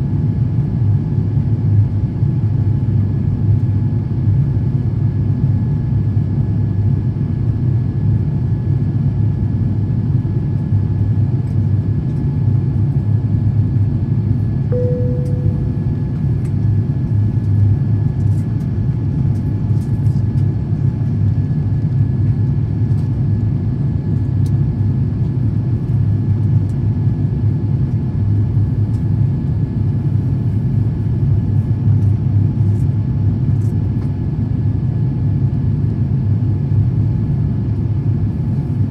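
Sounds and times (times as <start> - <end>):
short tone: 14.7 - 16.2
faint steady whine: 14.7 - 16.6
airplane cabin rumble: 14.7 - 21.0.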